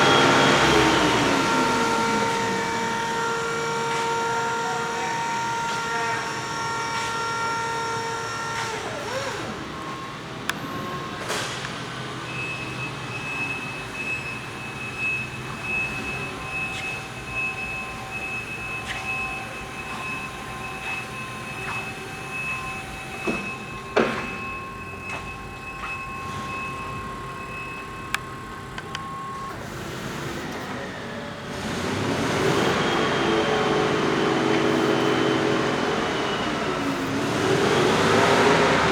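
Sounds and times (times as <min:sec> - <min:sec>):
electric truck motor whine: 0:00.0 - 0:38.9.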